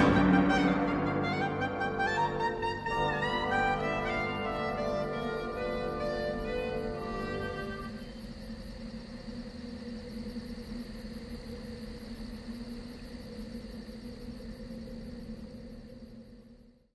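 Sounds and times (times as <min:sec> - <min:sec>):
orchestral music ending: 0:00.0 - 0:08.0
drone of held tones: 0:00.0 - 0:08.2
faint high insect-like pulsing: 0:01.4 - 0:16.9.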